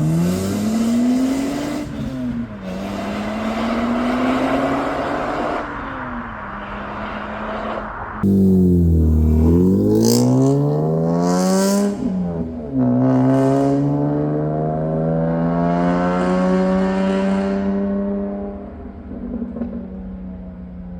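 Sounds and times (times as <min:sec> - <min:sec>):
car engine accelerating: 0:08.2 - 0:20.3.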